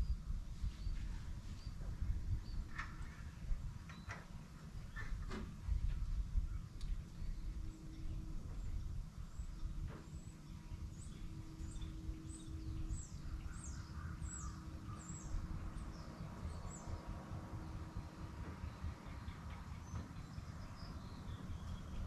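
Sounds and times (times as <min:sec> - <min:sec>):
steady low rumble: 0:00.0 - 0:22.0
bird chirping: 0:09.2 - 0:22.0.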